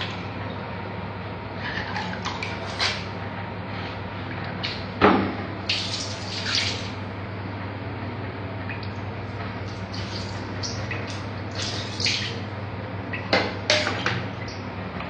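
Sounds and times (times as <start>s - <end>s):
tap water splashing: 9.7s - 12.4s.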